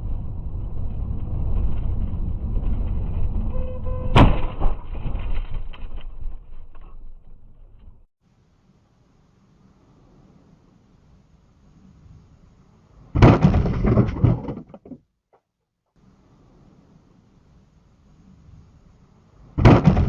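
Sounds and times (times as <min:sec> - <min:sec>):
road and engine rumble: 0:00.0 - 0:15.0, 0:16.0 - 0:19.8
brief pitched tone: 0:03.5 - 0:04.2
vehicle collision impact: 0:04.0 - 0:05.7, 0:13.2 - 0:15.0
knocks and clatter: 0:13.2 - 0:15.4.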